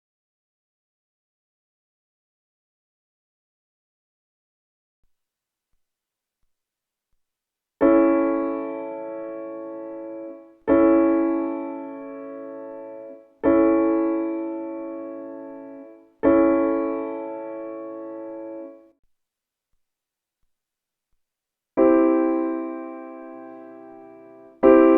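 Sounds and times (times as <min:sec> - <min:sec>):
piano chords: 0:07.8 - 0:19.0, 0:21.8 - 0:24.9.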